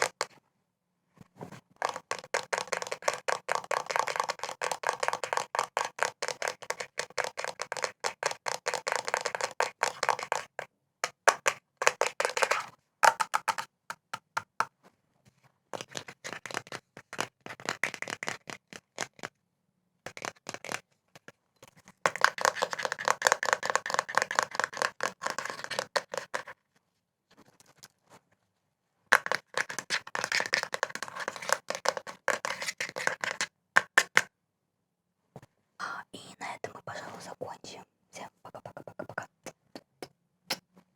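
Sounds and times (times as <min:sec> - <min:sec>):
fast tapping on hard objects: 0:00.0 - 0:00.3, 0:01.7 - 0:14.7, 0:15.8 - 0:19.3, 0:20.1 - 0:21.4, 0:22.0 - 0:26.6, 0:29.1 - 0:34.3.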